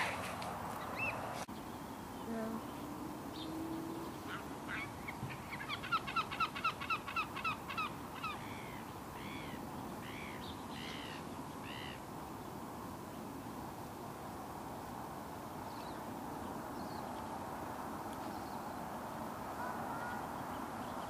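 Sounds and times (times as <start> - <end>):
birds calling: 0.0 - 12.1, 18.2 - 21.0
outdoor background: 0.0 - 21.0.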